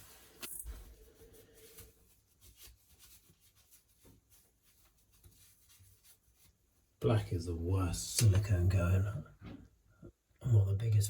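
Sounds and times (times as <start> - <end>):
hand rubbing and scraping: 0.0 - 7.0.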